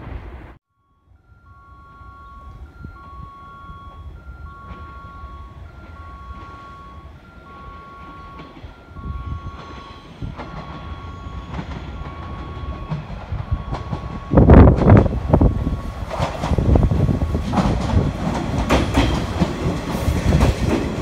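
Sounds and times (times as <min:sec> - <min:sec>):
two-tone electronic warning signal: 0:00.7 - 0:16.0
train rumble and wheel clicks: 0:01.9 - 0:21.0.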